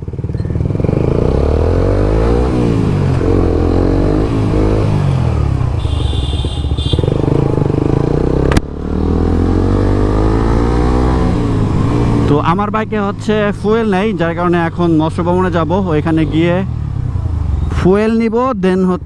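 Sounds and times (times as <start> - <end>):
motorcycle engine accelerating: 0.0 - 14.6.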